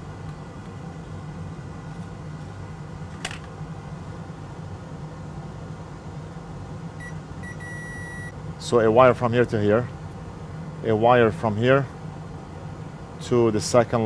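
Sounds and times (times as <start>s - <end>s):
fan-like hum: 0.0s - 14.0s.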